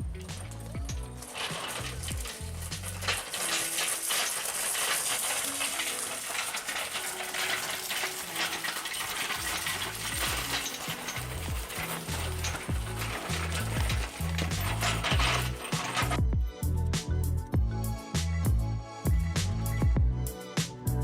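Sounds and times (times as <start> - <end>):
metallic clinking and jingling: 0.0 - 16.2
background music with bass beat: 16.2 - 21.0.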